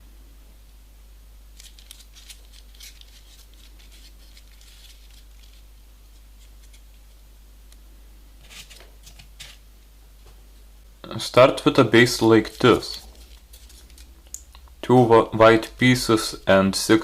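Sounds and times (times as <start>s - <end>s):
steady low hum: 0.0s - 17.0s
paper rustling and clicking: 1.6s - 7.2s, 12.1s - 14.4s.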